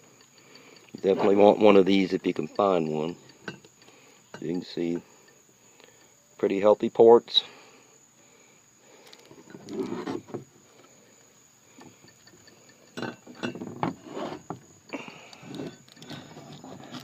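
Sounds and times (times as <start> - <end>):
metal parts clinking on bench: 12.1 - 13.7.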